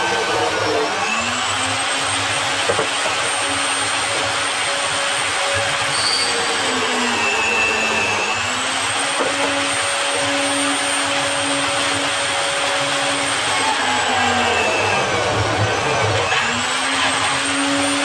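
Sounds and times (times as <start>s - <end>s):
power tool motor whine: 0.0s - 18.0s.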